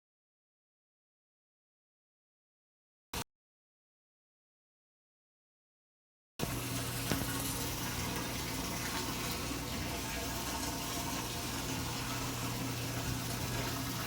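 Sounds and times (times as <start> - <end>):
washing machine running: 6.4 - 14.0.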